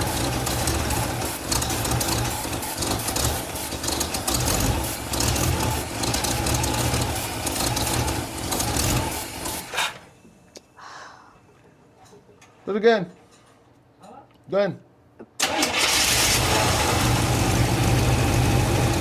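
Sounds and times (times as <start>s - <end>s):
engine cranking without starting: 0.0s - 10.1s, 15.4s - 18.1s.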